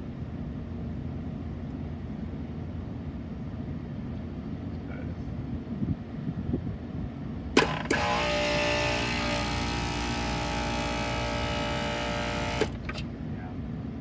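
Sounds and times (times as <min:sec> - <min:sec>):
contactor clacking: 0:07.6 - 0:13.1
refrigeration compressor humming: 0:07.6 - 0:13.3.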